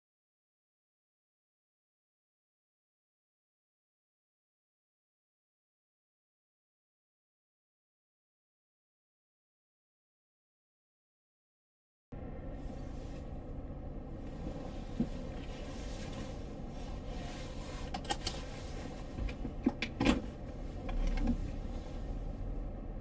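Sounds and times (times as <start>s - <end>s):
car road and engine hum: 12.1s - 23.0s
sharp clicks and knocks: 19.1s - 21.6s.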